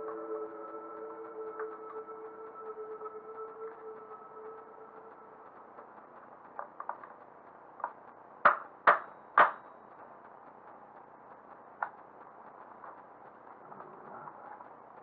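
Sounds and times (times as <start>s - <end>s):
faint clicks: 4.9s - 15.0s.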